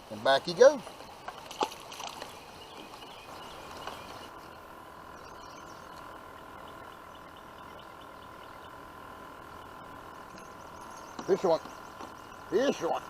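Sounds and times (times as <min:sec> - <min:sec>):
faint steady hum: 0:00.0 - 0:13.0
light splashes: 0:01.1 - 0:03.1
faint bird chirps: 0:02.2 - 0:13.0.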